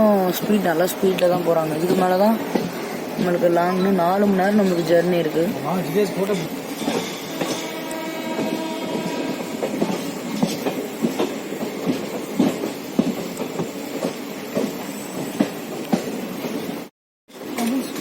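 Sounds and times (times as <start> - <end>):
train rumbling at speed: 0.0 - 18.0.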